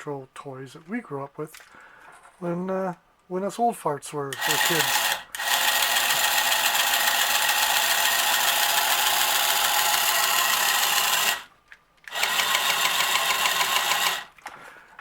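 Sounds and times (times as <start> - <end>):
toy motor and gears whirring: 4.3 - 14.4.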